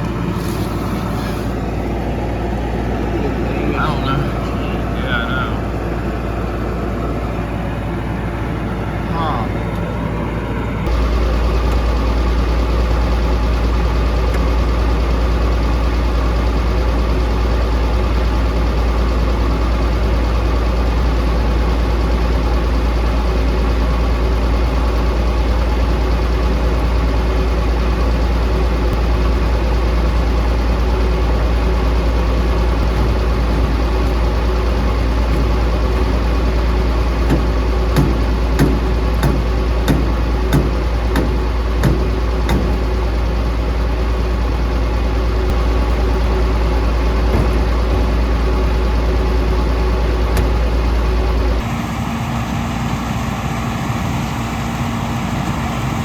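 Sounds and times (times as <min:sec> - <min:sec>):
combine engine hum: 0:00.0 - 0:56.0
short knocks: 0:32.8 - 0:43.0, 0:47.2 - 0:48.5.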